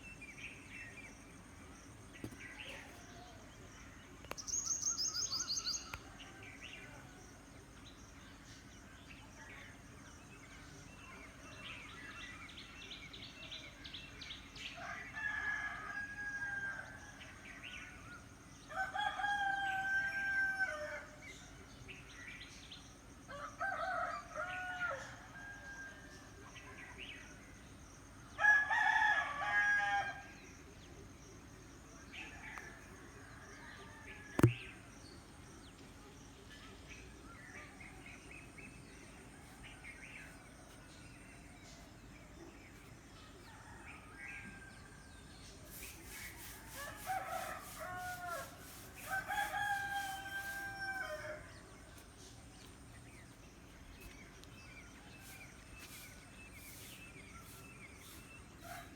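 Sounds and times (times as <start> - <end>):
small birds chirping: 45.6 - 58.9
roosters crowing: 46.4 - 51.5.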